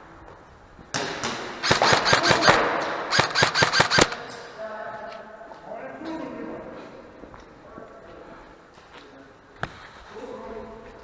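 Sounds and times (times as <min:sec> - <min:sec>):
airsoft guns firing sharp cracks: 0:00.9 - 0:04.6.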